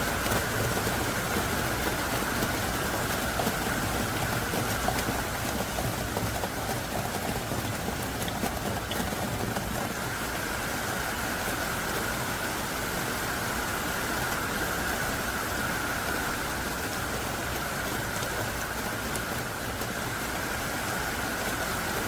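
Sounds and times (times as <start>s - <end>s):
raindrop ticks: 0.0s - 10.0s, 17.2s - 20.5s
heavy rain pouring: 0.0s - 22.0s.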